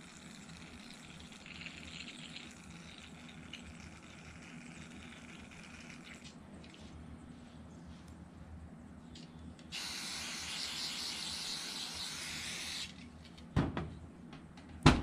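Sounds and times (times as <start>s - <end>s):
aerosol spray hiss: 9.7s - 12.9s.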